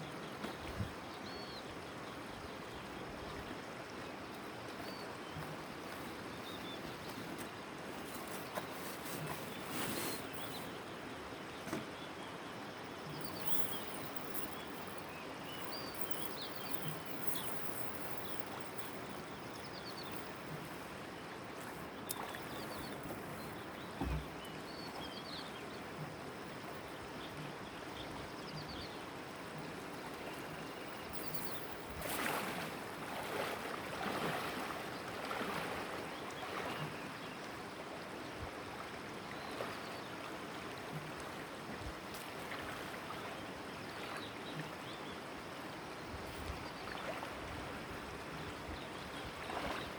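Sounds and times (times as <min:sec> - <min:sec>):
river water lapping around boat: 0:00.0 - 0:49.9
faint bird chirps: 0:09.4 - 0:10.9, 0:12.6 - 0:20.9, 0:22.0 - 0:25.8, 0:30.3 - 0:31.8.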